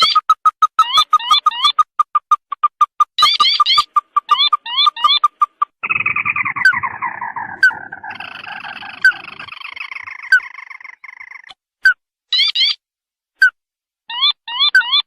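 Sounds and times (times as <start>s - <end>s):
crake chattering trill: 0.0s - 11.5s
quick rising bird notes: 5.8s - 11.5s.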